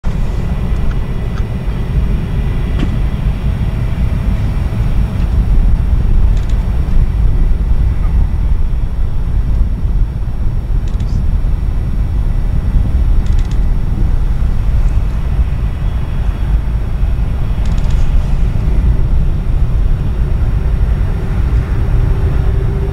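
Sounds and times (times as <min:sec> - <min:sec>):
jet engines running: 0:00.0 - 0:22.9
faint clicks: 0:10.8 - 0:11.2.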